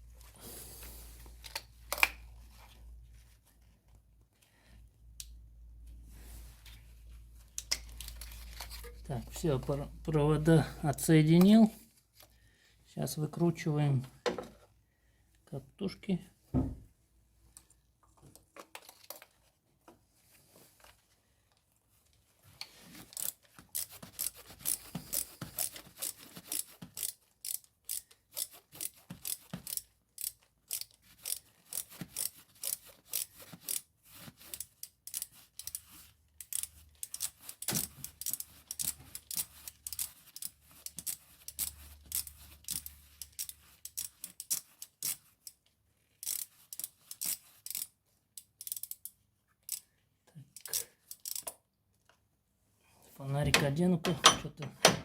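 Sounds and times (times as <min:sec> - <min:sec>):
ratchet wrench clicking: 0:23.1 - 0:33.8, 0:34.5 - 0:45.6, 0:46.2 - 0:49.8, 0:50.6 - 0:51.6.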